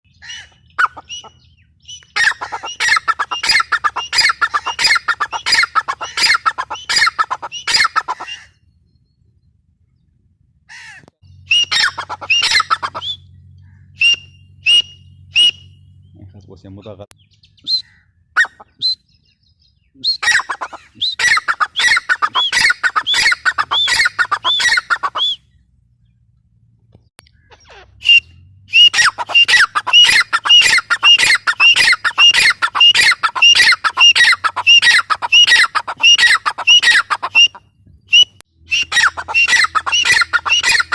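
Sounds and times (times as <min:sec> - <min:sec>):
francolin calling: 0:00.1 - 0:08.8, 0:11.2 - 0:16.2, 0:17.2 - 0:25.6, 0:27.2 - 0:40.9.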